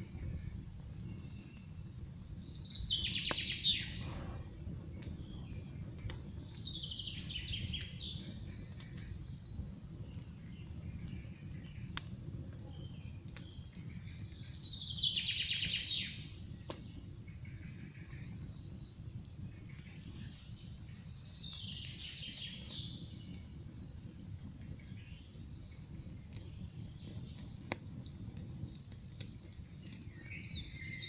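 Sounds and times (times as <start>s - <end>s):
campfire crackling: 0.0s - 31.0s
low steady rumble: 3.8s - 6.5s.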